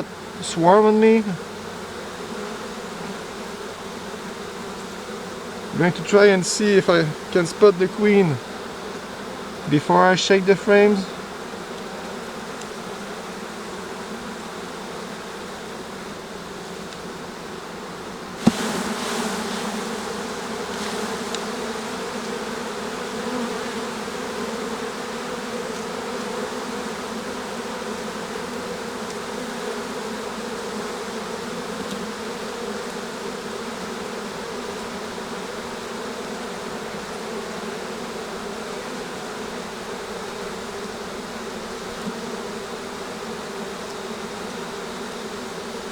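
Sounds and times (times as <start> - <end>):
bees buzzing: 0.0 - 45.9
sharp knock: 18.4 - 18.8.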